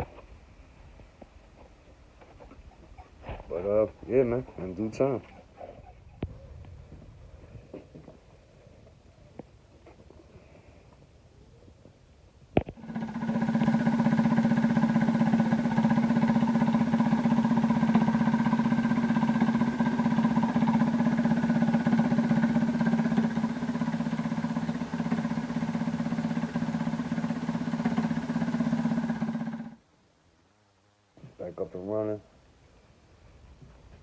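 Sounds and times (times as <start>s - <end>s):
minibike engine idling: 12.7s - 29.8s.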